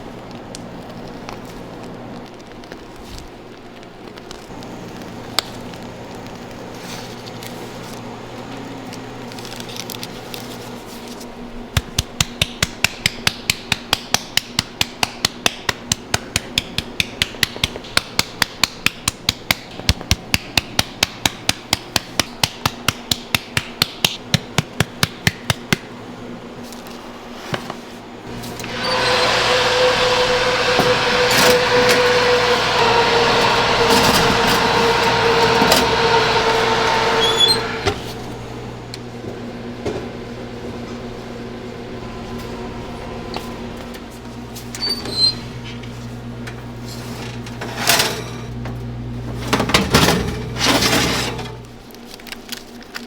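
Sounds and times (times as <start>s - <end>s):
steady machine noise: 28.3s - 38.9s.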